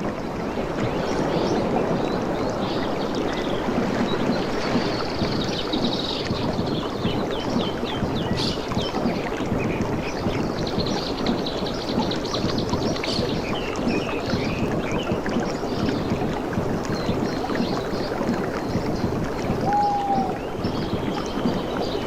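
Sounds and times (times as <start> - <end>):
water lapping and splashing: 0.0 - 22.0
small birds chirping: 2.6 - 22.0
bird trill: 19.6 - 20.4
falling whistled call: 19.6 - 20.4.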